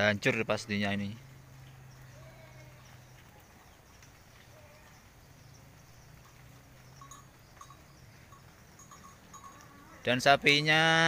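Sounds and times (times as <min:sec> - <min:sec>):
faint ticks: 0:01.5 - 0:09.8.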